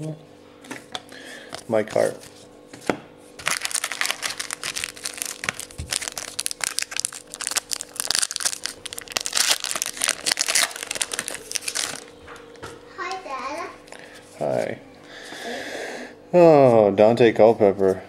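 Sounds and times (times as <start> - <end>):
foil wrapper crinkling: 3.4 - 12.2, 13.8 - 14.2.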